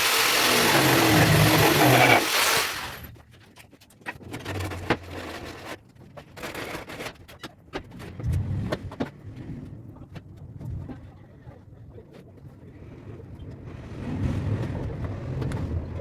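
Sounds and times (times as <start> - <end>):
wood scraping on bench: 0.0 - 2.6.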